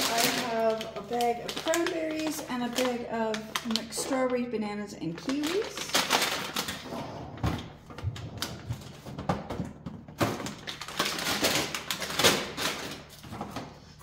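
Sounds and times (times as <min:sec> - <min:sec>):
plastic bags crinkling: 0:00.0 - 0:07.0, 0:07.6 - 0:14.0
frozen packages knocking down: 0:07.6 - 0:13.6.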